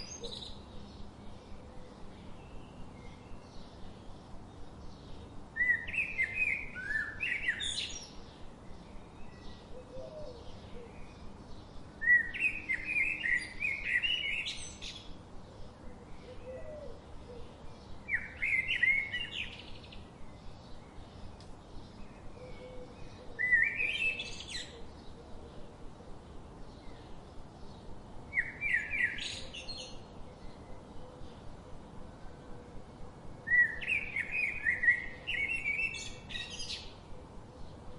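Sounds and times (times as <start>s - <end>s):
songbird twittering: 20.6s - 25.0s, 33.5s - 36.9s.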